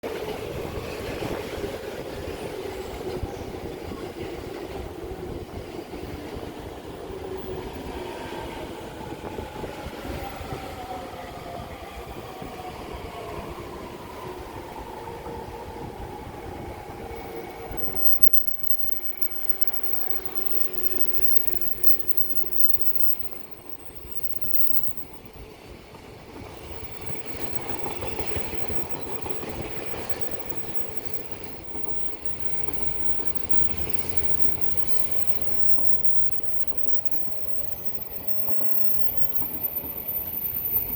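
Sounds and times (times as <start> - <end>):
freight train wheels rolling: 0.1 - 40.9
rail clatter: 17.0 - 40.9
faint whine: 17.1 - 25.3.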